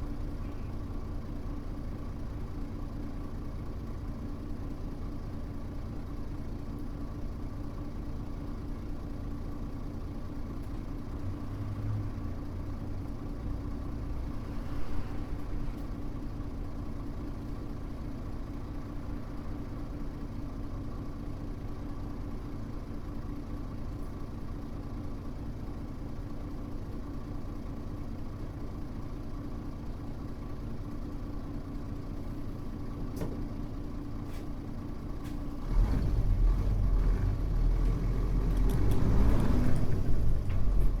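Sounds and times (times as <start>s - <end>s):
bus engine idling: 0.0s - 35.7s, 39.8s - 41.0s.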